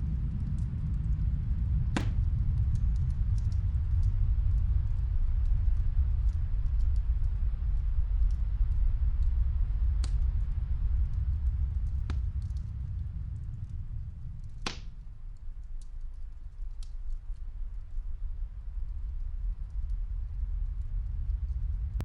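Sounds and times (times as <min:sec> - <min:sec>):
snowstorm wind rumbling: 0:00.0 - 0:22.0
wood fire crackling: 0:01.9 - 0:04.1, 0:05.6 - 0:22.0.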